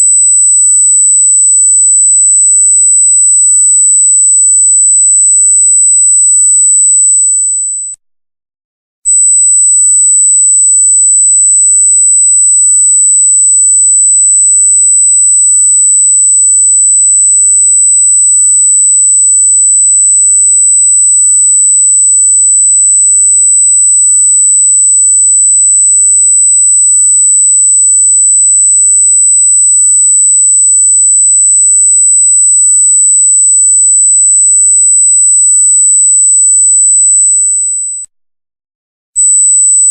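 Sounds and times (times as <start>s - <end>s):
high-pitched electronic tone: 39.2s - 39.9s.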